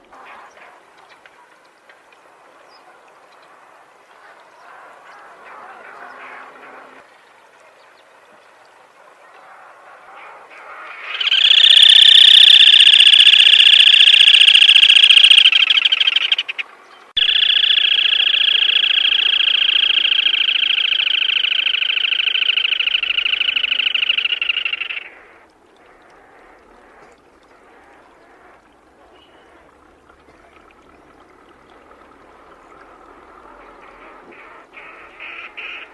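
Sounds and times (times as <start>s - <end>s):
bird trilling calls: 11.0s - 16.6s, 17.2s - 25.3s.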